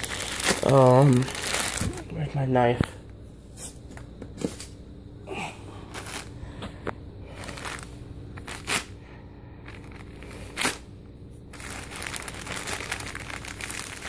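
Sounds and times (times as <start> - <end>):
packaging crinkling and rustling: 0.0 - 2.9, 7.3 - 8.9, 9.7 - 10.8, 11.5 - 14.0.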